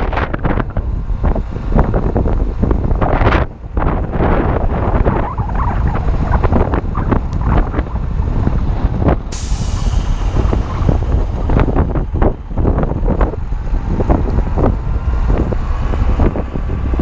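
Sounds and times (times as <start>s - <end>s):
wind buffeting microphone: 0.0s - 17.0s
sudden hiss: 9.3s - 11.9s.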